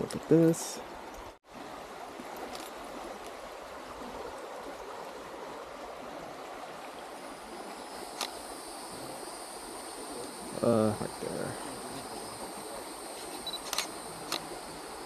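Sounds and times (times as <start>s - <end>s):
water rushing over rocks: 0.0s - 15.0s
faint high insect buzz: 7.1s - 15.0s.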